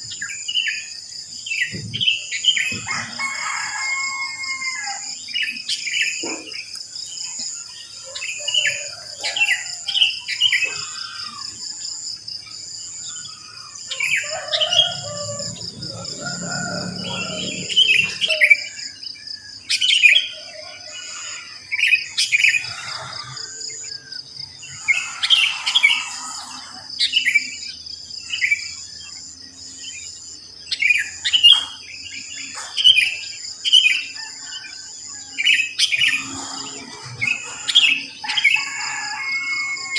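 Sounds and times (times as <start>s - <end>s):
high-pitched insect trill: 6.8s - 19.5s, 20.2s - 39.9s
bulbuls chirping and calling: 12.4s - 27.8s, 30.7s - 39.7s.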